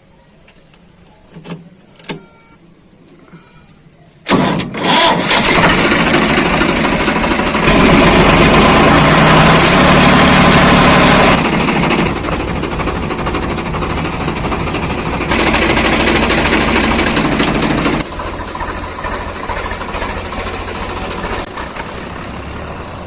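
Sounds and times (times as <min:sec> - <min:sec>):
tractor diesel engine running: 0:04.3 - 0:23.0.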